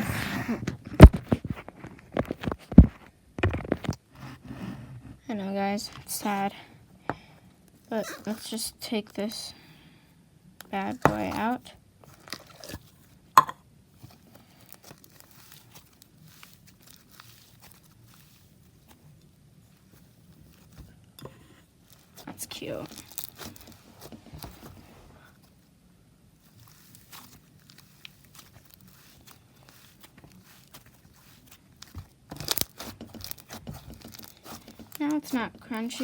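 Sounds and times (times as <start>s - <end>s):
slime being handled: 10.7s - 36.0s
faint crackles and clicks: 14.0s - 25.7s, 26.4s - 36.0s.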